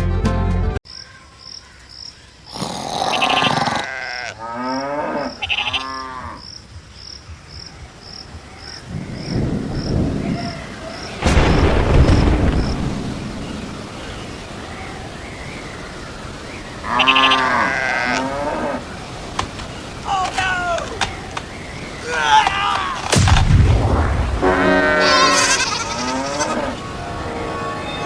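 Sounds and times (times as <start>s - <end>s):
low rumbling noise: 8.9s - 15.2s, 23.1s - 28.0s.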